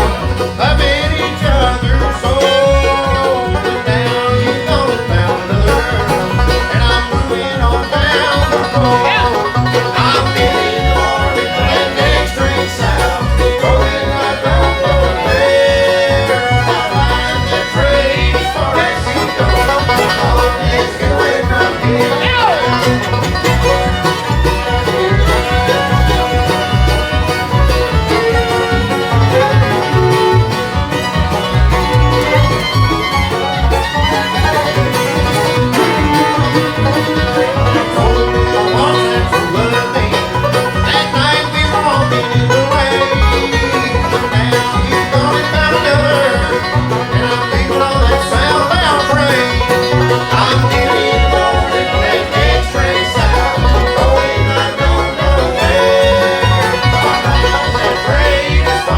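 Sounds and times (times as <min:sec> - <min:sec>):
acoustic guitar: 0:00.0 - 0:58.9
banjo: 0:00.0 - 0:58.9
fiddle: 0:00.0 - 0:58.9.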